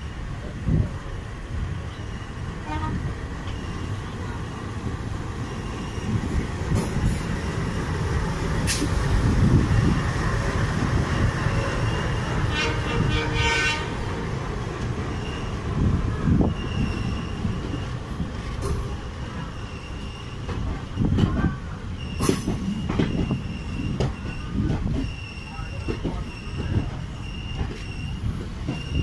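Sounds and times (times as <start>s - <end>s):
train wheels rumbling on rails: 0.0s - 29.0s
train horn: 2.6s - 3.1s, 12.4s - 14.1s.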